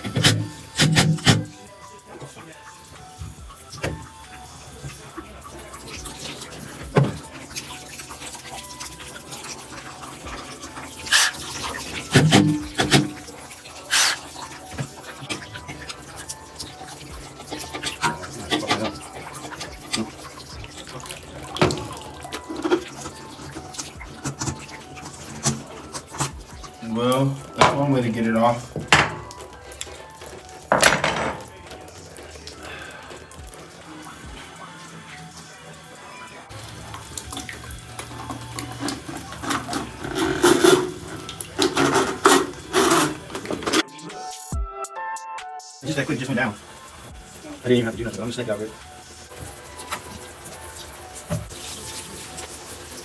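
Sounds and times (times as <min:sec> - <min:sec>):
water splashing in shower: 0:00.0 - 0:43.9, 0:45.8 - 0:53.0
sharp knocks and clanks: 0:30.7 - 0:31.5.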